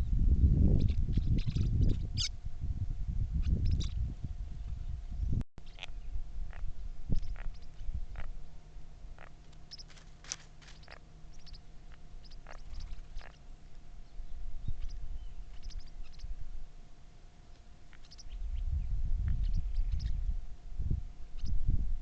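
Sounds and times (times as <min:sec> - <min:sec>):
faint steady hum: 0:00.0 - 0:22.0
birds chirping: 0:05.6 - 0:16.4, 0:17.4 - 0:20.4.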